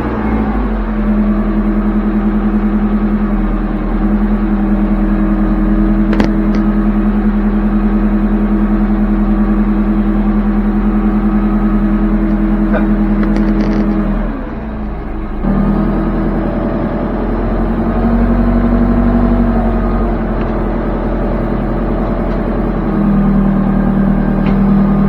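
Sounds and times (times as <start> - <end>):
backhoe engine running: 0.0 - 25.0
sharp clicks or knocks: 6.1 - 6.8, 12.3 - 14.1.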